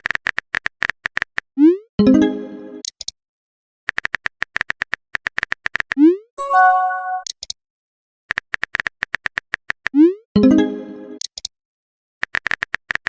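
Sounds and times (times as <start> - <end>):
phone keyboard typing clicks: 3.9 - 5.9
message chime: 6.4 - 7.2.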